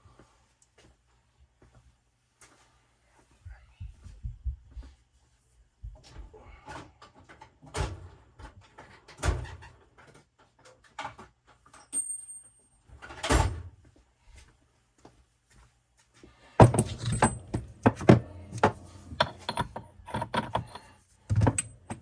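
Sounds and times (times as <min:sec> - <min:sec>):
loud metal clanks: 0:16.6 - 0:22.0
metal tools clinking and knocking: 0:16.6 - 0:22.0.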